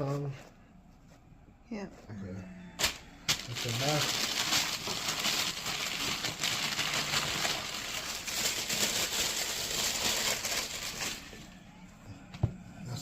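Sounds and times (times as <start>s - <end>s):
sneaker and packaging rustling: 2.8s - 11.6s.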